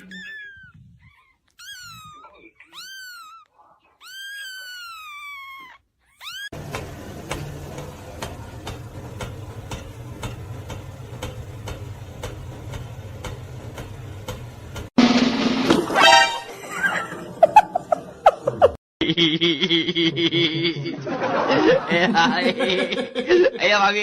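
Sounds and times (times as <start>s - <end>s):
cat meowing: 0.0s - 6.6s.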